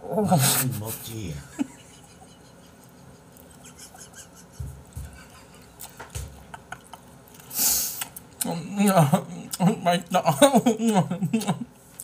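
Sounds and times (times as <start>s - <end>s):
man chewing: 2.3s - 8.6s.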